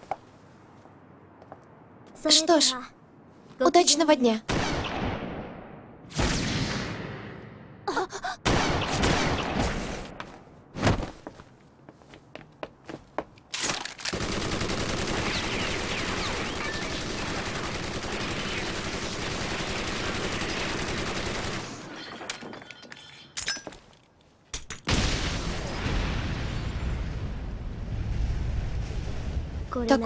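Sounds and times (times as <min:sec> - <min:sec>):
automatic gunfire: 0:14.1 - 0:21.8.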